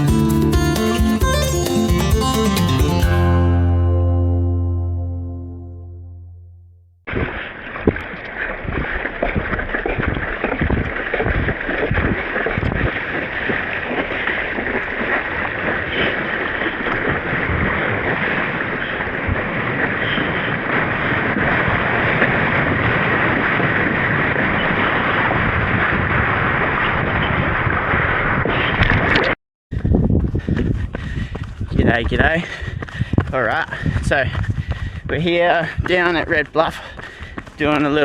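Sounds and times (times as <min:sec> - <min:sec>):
rushing water: 0:07.1 - 0:26.8
wind rushing on microphone: 0:07.1 - 0:38.0.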